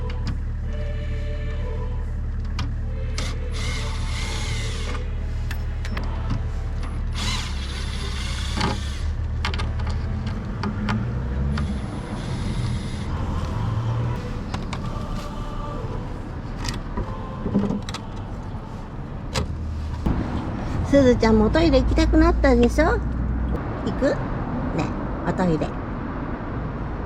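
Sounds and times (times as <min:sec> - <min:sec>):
steady low hum: 0:00.0 - 0:23.8
cordless power tool running: 0:07.2 - 0:09.2.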